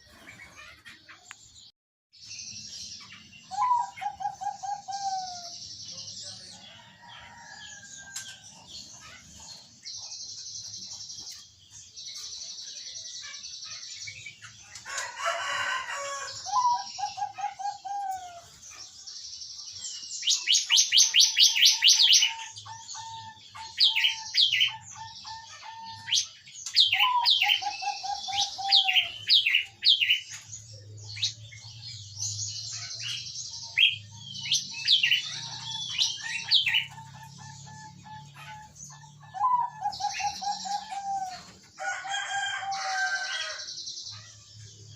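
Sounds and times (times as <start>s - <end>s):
small birds chirping: 0.0s - 44.9s
doves cooing: 3.5s - 5.5s, 14.9s - 18.6s, 21.0s - 30.2s, 32.0s - 43.6s.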